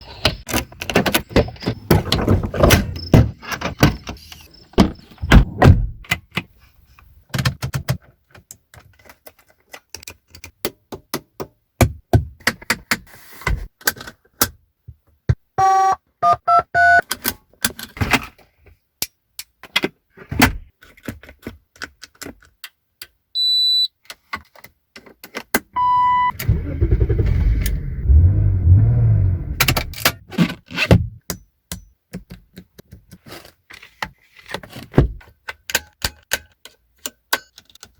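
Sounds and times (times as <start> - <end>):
single beeps: 25.8 - 26.4
car engine starting and idling: 25.8 - 30.1
car door and lock clunking: 26.4 - 30.2.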